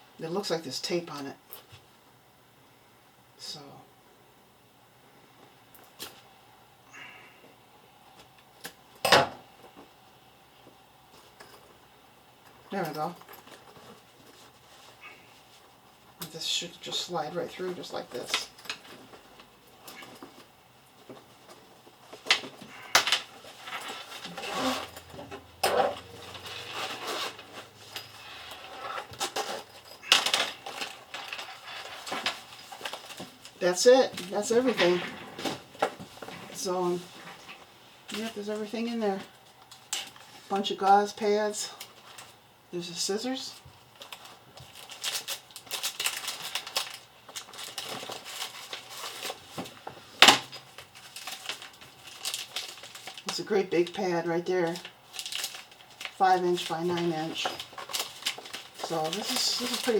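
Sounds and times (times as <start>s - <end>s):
first aid kit clicks and rustles: 17.6s - 36.6s, 43.5s - 54.0s, 54.6s - 59.9s.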